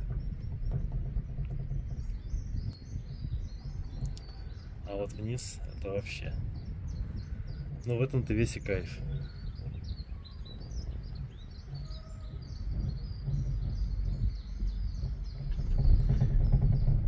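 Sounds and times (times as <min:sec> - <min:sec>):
low rumble: 0:00.0 - 0:17.0
small birds chirping: 0:00.0 - 0:17.0.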